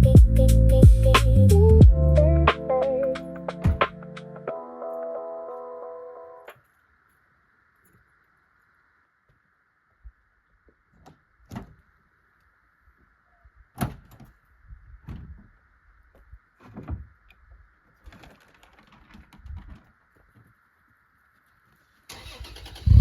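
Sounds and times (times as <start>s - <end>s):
faint steady hiss: 5.5s - 23.0s.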